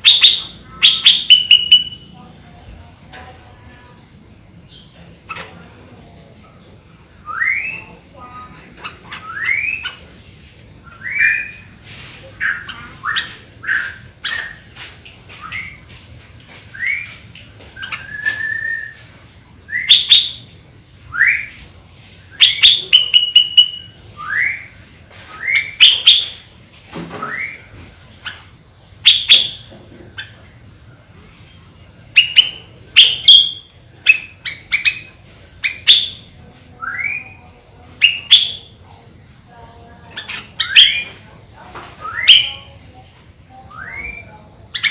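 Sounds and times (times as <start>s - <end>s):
bird whistled notes: 0.1s - 2.0s, 42.0s - 42.6s.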